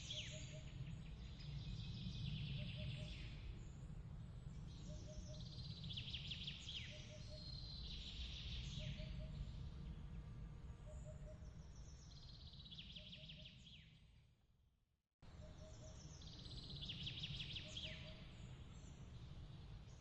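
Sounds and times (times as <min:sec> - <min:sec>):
low steady rumble: 0:00.0 - 0:12.8.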